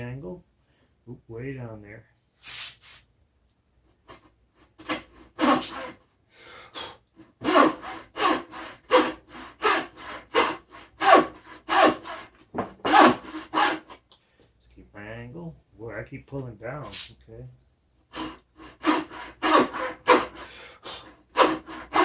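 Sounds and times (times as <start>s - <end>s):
hand saw cutting wood: 4.1s - 6.0s, 7.4s - 14.0s, 18.1s - 22.0s.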